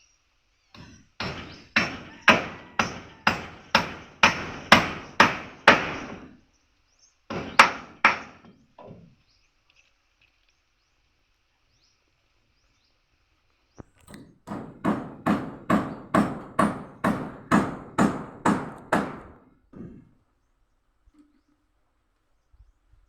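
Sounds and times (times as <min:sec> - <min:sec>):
sharp blows on wood: 0:00.8 - 0:06.3, 0:07.3 - 0:08.6, 0:14.1 - 0:20.1
faint bird chirps: 0:20.3 - 0:23.0.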